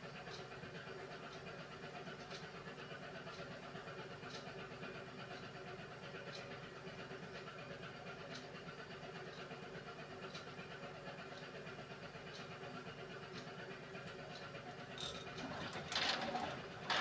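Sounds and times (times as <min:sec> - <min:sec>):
washing machine motor humming: 0:15.0 - 0:17.0.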